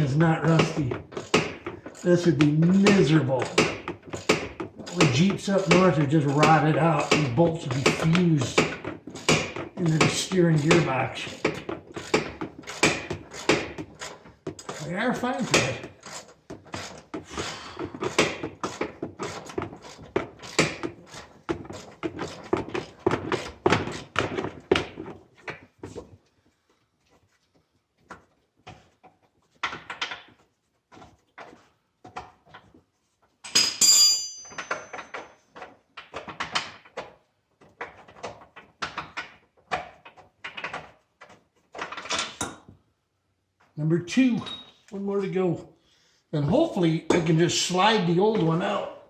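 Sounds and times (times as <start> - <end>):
hand ratchet clicking: 0.6 - 21.2
ringing metal clink: 33.5 - 35.4.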